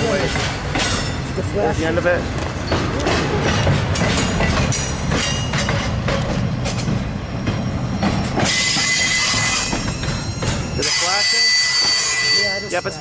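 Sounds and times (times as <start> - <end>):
freight train rumbling past: 0.0 - 13.0
high wheel squeal: 7.8 - 13.0.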